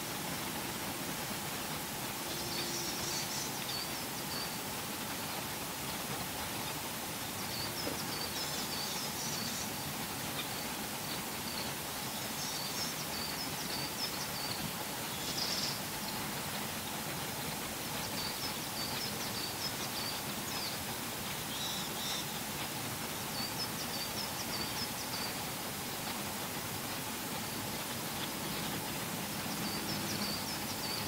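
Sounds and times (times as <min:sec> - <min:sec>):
outdoor background hiss: 0:00.0 - 0:31.0
faint twittering bird song: 0:00.1 - 0:31.0.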